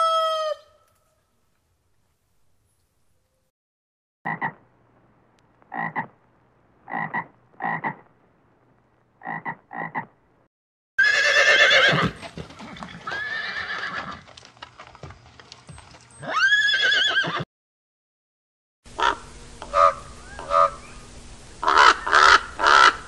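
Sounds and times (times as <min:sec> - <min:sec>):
frog croaking: 0:04.3 - 0:04.6, 0:05.7 - 0:06.2, 0:06.8 - 0:08.1, 0:09.2 - 0:10.2
horse neighing: 0:11.0 - 0:14.3, 0:16.2 - 0:17.4
hoof clip-clops: 0:11.8 - 0:17.0.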